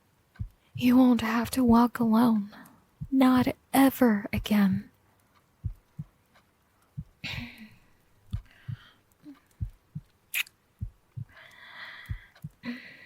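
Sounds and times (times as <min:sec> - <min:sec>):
slow heartbeat thumps: 0:00.4 - 0:01.9, 0:03.0 - 0:03.6, 0:04.4 - 0:05.0, 0:05.6 - 0:06.2, 0:07.0 - 0:10.2, 0:10.8 - 0:12.7
quiet breaths: 0:02.4 - 0:03.1, 0:04.7 - 0:10.1, 0:10.8 - 0:13.0.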